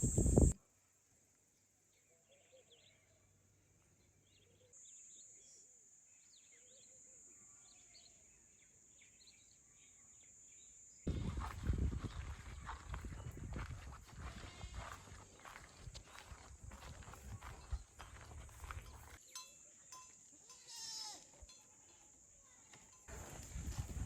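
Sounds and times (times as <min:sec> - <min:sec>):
steady high hiss: 0:00.0 - 0:00.6.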